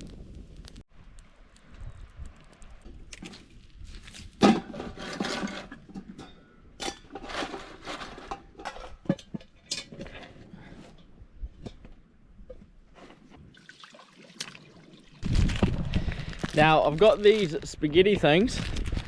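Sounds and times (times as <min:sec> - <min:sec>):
camp cooking gear clanking: 0:04.1 - 0:13.3.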